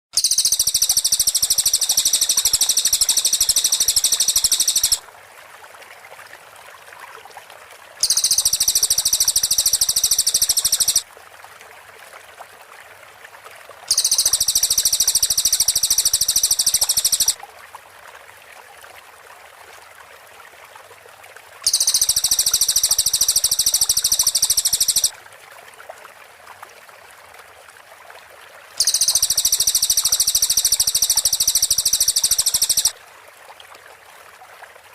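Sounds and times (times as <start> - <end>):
bird singing high rapid notes: 0.2 - 5.0, 8.0 - 11.0, 13.9 - 17.4, 21.7 - 25.1, 28.8 - 32.9.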